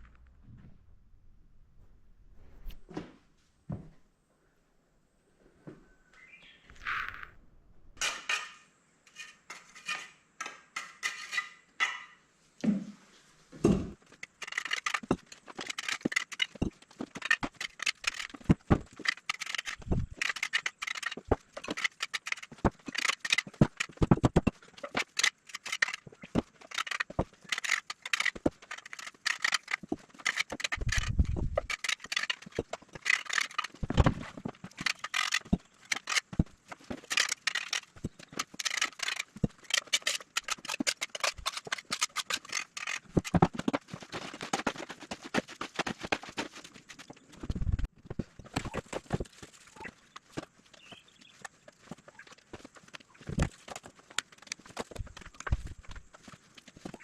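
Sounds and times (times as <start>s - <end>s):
hand tool scraping and clicking: 14.0s - 47.4s.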